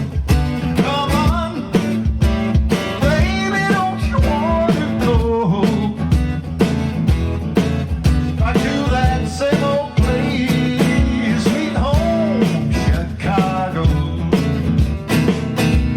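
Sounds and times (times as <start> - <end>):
live band playing instrumental: 0.0 - 15.9.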